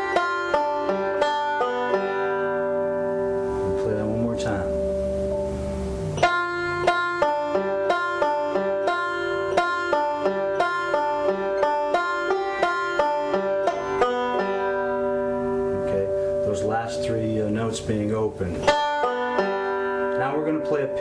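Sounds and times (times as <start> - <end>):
banjo picked fingerstyle: 0.0 - 21.0.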